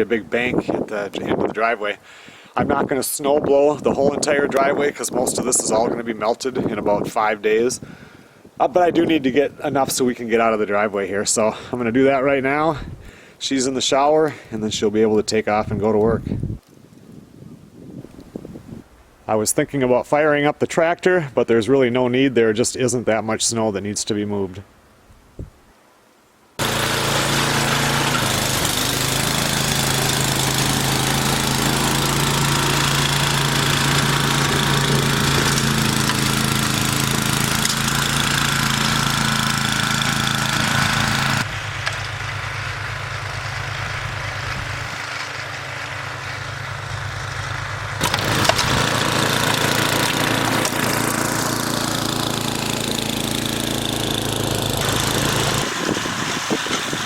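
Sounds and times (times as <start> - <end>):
snowblower engine running: 26.6 - 57.0.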